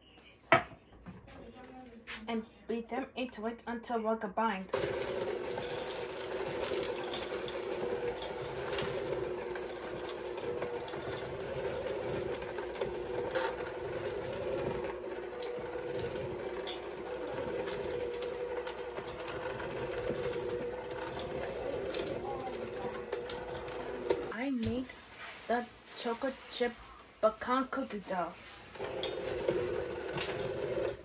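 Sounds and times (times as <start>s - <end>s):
electric mixer beating dough: 4.7s - 24.4s, 28.8s - 31.0s.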